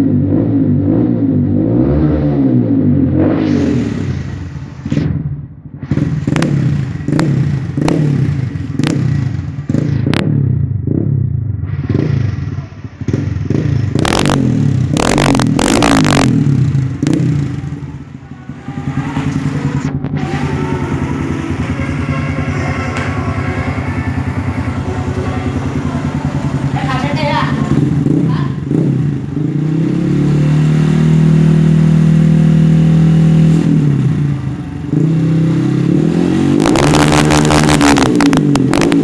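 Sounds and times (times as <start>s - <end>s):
motorcycle engine revving: 0.0s - 39.0s
exhaust cracks: 3.2s - 10.8s, 11.4s - 39.0s.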